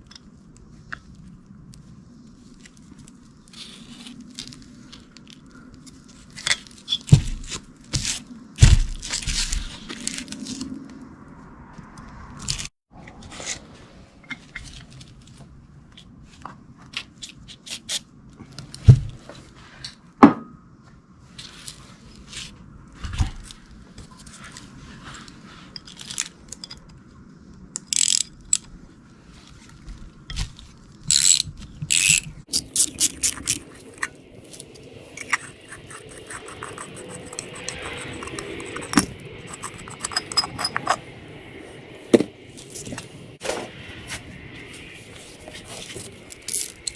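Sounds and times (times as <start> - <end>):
metal tools clicking and knocking: 32.5 - 41.1, 46.0 - 46.9.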